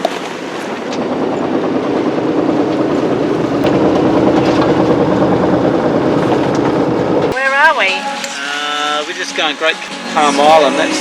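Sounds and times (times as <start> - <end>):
boat engine running: 0.0 - 8.3.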